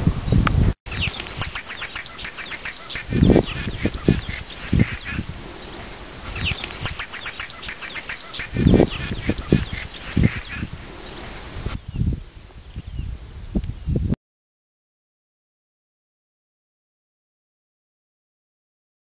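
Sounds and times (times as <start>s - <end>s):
songbird singing: 0.3s - 14.0s.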